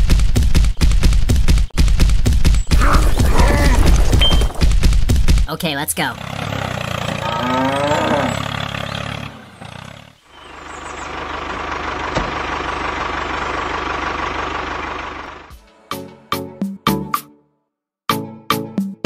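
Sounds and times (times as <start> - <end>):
small engine running: 6.1 - 15.7.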